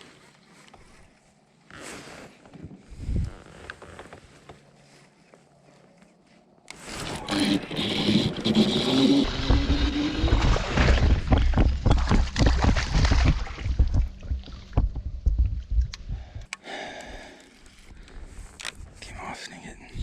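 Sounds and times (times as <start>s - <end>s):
water splashing against kayak hull: 7.0s - 15.4s
low rumble: 9.2s - 16.5s.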